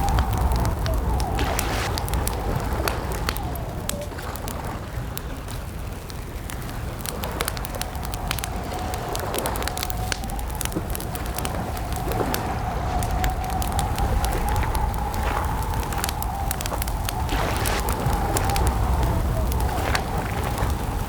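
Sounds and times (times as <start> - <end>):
low rumble: 0.0 - 4.5
campfire crackling and popping: 0.0 - 21.0.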